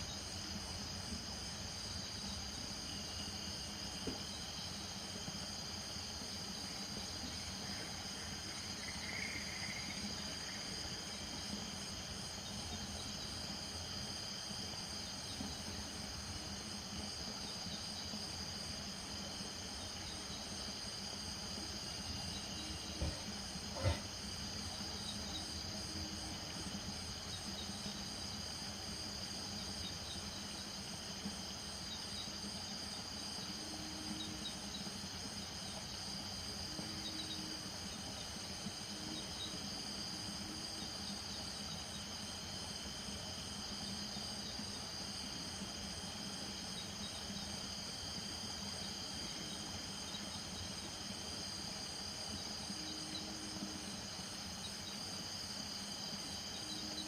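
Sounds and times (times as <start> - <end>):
crickets and insects trilling: 0.0 - 57.0
frogs calling: 22.1 - 26.3.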